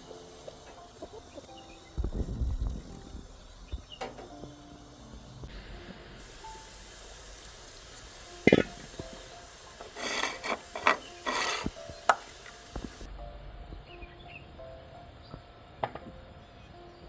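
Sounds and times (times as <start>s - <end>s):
scraping in a pot: 9.8s - 12.2s
cookware knock: 10.0s - 12.3s.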